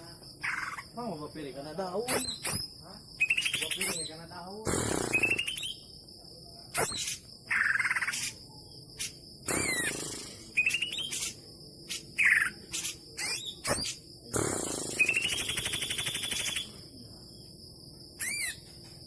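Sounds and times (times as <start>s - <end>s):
bird singing chatter and whistles: 2.0s - 5.9s, 6.7s - 8.4s, 9.0s - 16.8s, 18.2s - 18.7s.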